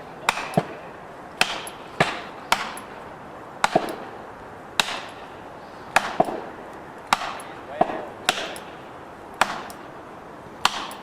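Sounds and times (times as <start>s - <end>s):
sharp knocks: 7.1s - 8.8s.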